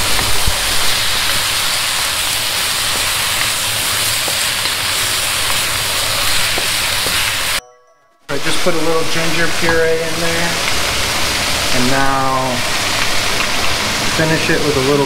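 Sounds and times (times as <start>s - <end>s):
vegetables sizzling in a wok: 0.0s - 7.6s, 9.9s - 14.8s
wooden spatula stirring: 0.2s - 7.6s.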